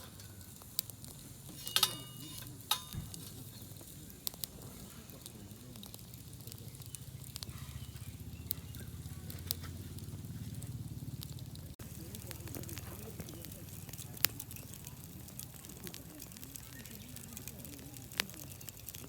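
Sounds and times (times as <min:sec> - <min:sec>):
light metallic clink: 0:00.0 - 0:03.9
campfire crackling pops: 0:00.0 - 0:19.0
low steady rumble: 0:04.9 - 0:15.4.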